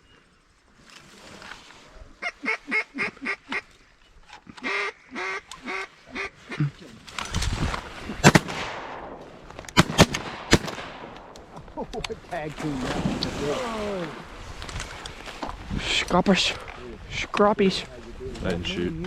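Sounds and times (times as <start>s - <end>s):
duck quacking: 2.2s - 3.7s, 4.5s - 6.8s
shotgun shots: 8.2s - 11.4s.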